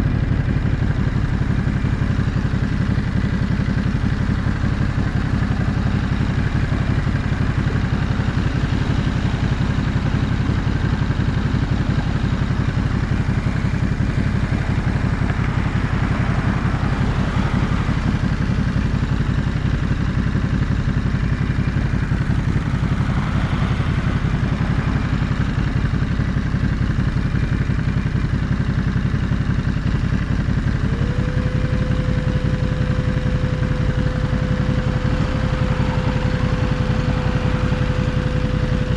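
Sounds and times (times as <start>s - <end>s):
motorcycle engine running: 0.0s - 38.9s
steady high tone: 21.2s - 27.3s, 30.4s - 38.9s.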